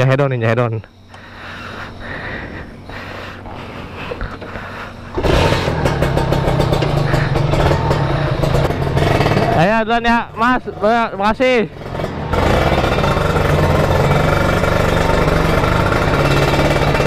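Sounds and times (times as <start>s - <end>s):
motorcycle engine starting and idling: 1.1s - 17.0s.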